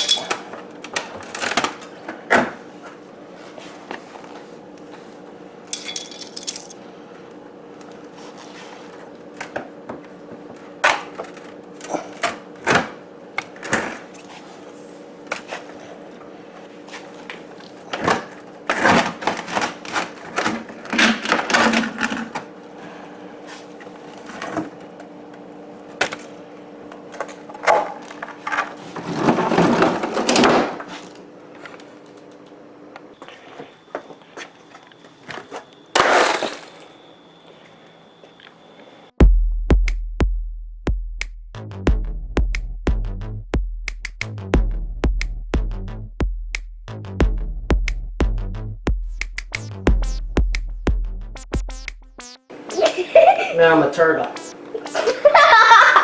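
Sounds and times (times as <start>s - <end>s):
freezer low hum: 0.0s - 39.4s.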